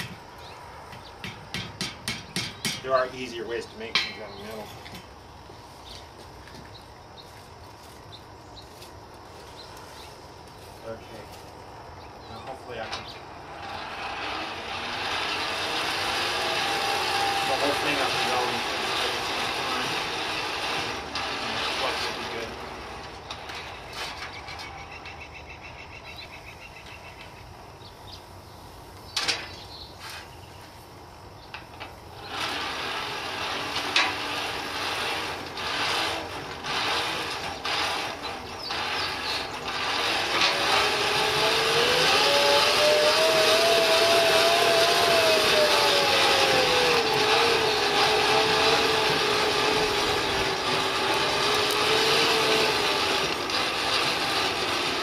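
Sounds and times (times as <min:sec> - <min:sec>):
blower whine: 0:00.0 - 0:25.2, 0:26.9 - 0:55.0
forge blower air rush: 0:12.4 - 0:24.3, 0:31.9 - 0:55.0.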